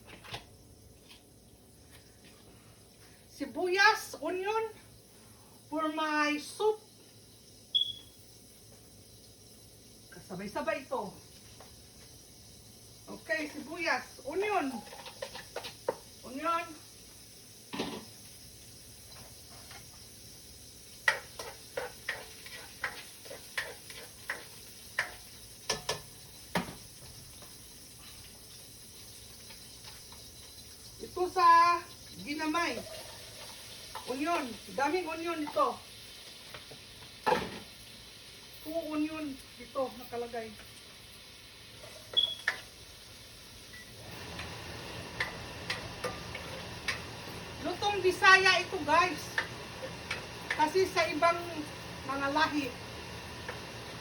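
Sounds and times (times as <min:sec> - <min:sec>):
onions sizzling in oil: 0:00.0 - 0:54.0
utensil clicking against pan: 0:21.0 - 0:26.1, 0:45.2 - 0:47.1, 0:49.3 - 0:50.7.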